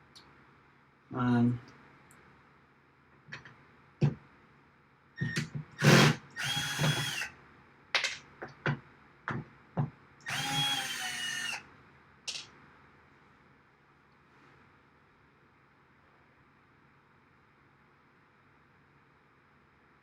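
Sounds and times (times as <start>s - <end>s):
power drill whine: 5.2s - 7.3s, 10.3s - 11.6s.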